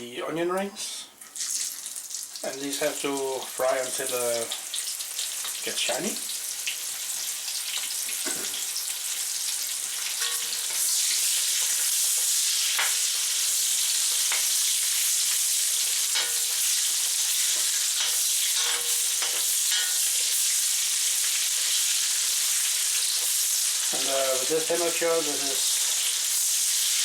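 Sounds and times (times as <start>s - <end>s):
onion rings sizzling in fat: 1.2s - 27.0s
utensil scraping wok: 9.9s - 24.1s.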